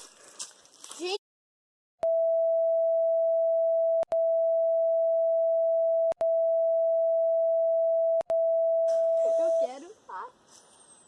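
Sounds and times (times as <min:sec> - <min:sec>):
censor bleep tone: 0:02.0 - 0:09.7.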